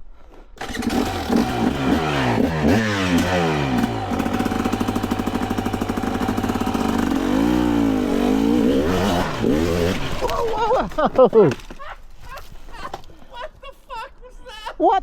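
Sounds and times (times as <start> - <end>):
two-stroke dirt bike engine revving: 0.6 - 11.7.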